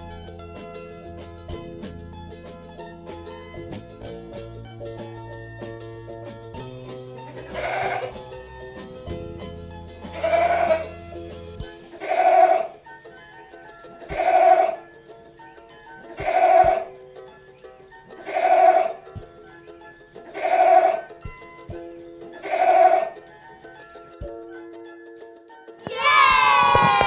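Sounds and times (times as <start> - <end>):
background music: 0.0 - 27.0
goat bleating: 7.3 - 8.2, 10.2 - 10.9.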